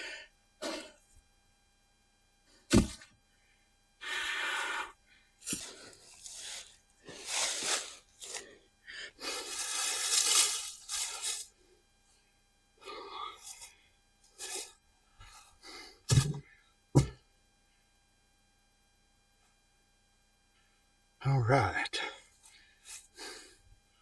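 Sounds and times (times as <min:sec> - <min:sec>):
person breathing hard: 0:00.0 - 0:01.0, 0:04.0 - 0:11.4, 0:12.8 - 0:16.1, 0:22.4 - 0:23.7
sharp thump: 0:02.7 - 0:03.0, 0:16.1 - 0:16.4, 0:17.0 - 0:17.2.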